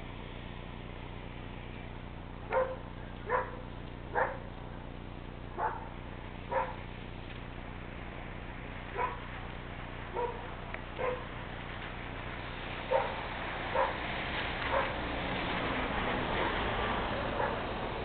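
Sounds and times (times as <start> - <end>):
dog barking: 2.5 - 4.5, 5.6 - 6.8, 8.9 - 9.3, 10.1 - 11.3, 12.9 - 14.0, 14.7 - 15.0, 17.3 - 17.7.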